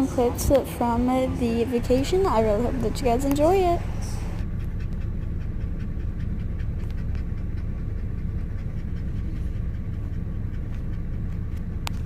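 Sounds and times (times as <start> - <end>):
car road noise rumble: 0.0 - 12.0
dog panting: 0.0 - 12.0.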